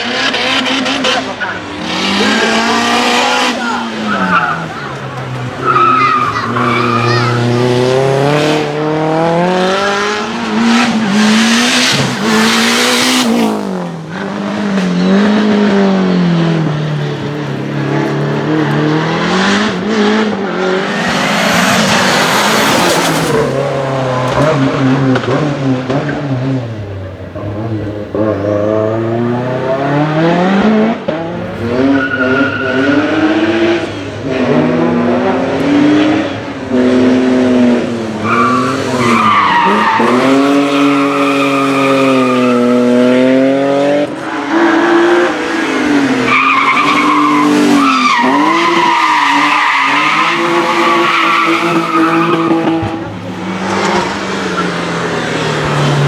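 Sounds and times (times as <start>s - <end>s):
race car engine accelerating: 0.0s - 56.0s
tyres squealing: 0.6s - 8.5s, 31.2s - 34.6s, 37.8s - 42.9s, 44.2s - 56.0s.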